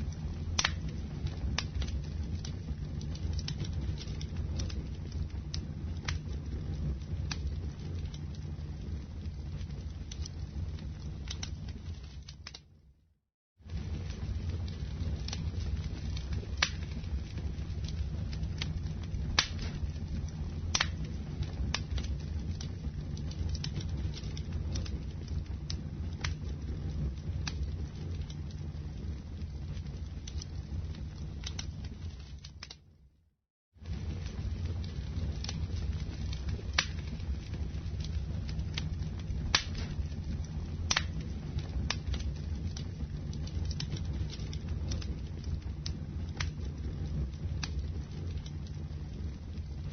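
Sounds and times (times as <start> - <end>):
wood fire crackling and popping: 0.0 - 13.0, 13.6 - 33.1, 33.8 - 49.9
low rumble of flames: 0.0 - 49.9.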